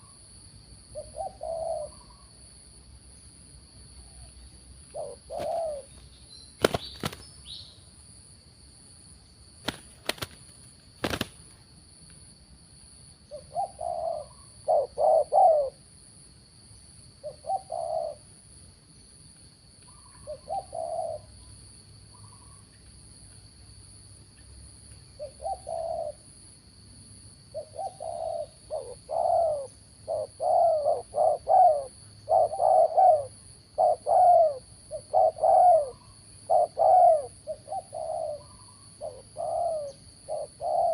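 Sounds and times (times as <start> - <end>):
doves cooing: 1.0 - 2.2, 4.9 - 5.9, 13.3 - 15.8, 17.2 - 18.2, 20.0 - 21.3, 25.2 - 26.2, 27.6 - 40.9.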